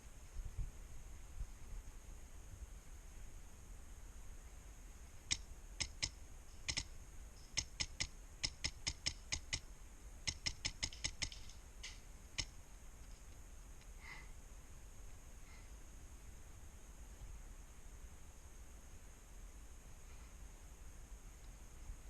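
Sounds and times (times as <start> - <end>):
airsoft rifle shots: 10.3 - 12.6.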